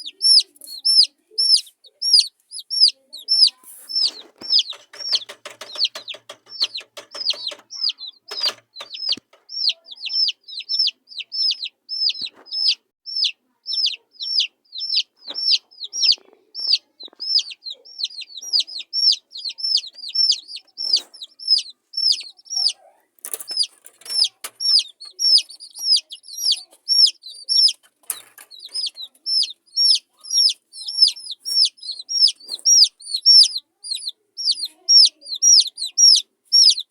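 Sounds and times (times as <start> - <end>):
chicks peeping: 0.0 - 36.9
soft knocks: 4.4 - 9.5.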